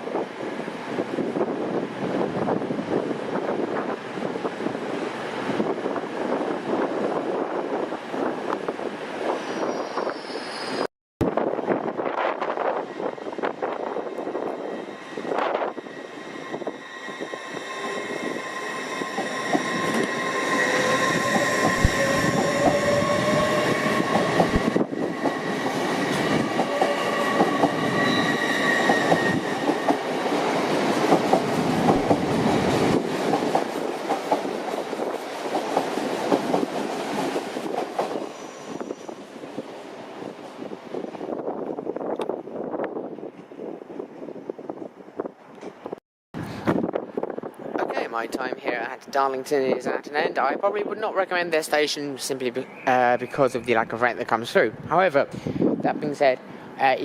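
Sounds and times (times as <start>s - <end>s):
train wheels on rails: 0.9s - 44.2s.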